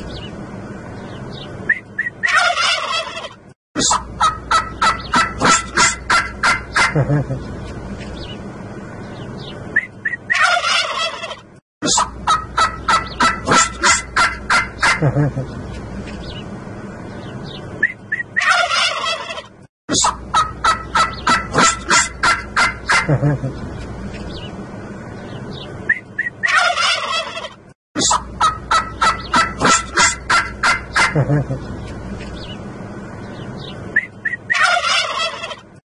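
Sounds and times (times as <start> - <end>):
turkeys gobbling: 1.7 - 7.4, 10.0 - 15.6, 17.8 - 23.6, 25.9 - 31.7, 34.0 - 35.7.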